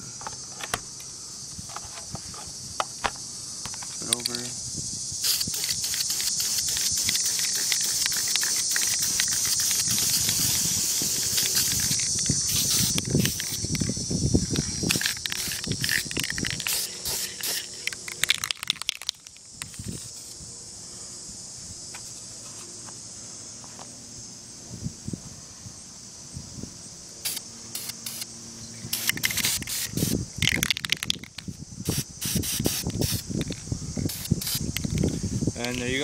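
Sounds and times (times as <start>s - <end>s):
aerosol spray hiss: 3.5s - 18.9s, 19.6s - 20.5s, 27.2s - 28.3s, 28.9s - 35.6s.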